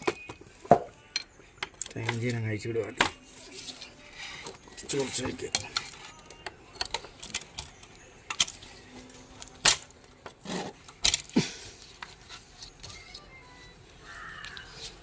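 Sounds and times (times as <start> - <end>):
metal tools clinking and knocking: 4.3 - 11.4.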